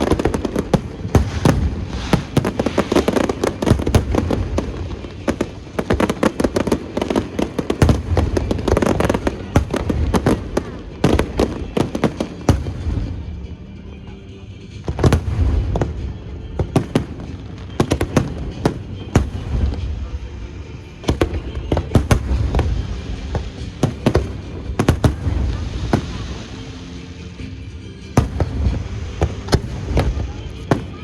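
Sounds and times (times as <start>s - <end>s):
fireworks booms: 0.0s - 13.2s, 21.0s - 26.5s
fireworks crackling and popping: 0.0s - 13.7s, 14.3s - 31.0s.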